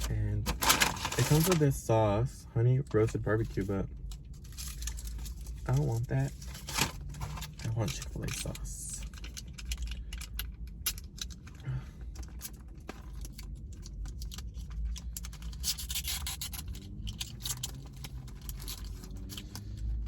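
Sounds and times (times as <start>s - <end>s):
food wrapper rustling: 0.0s - 1.7s.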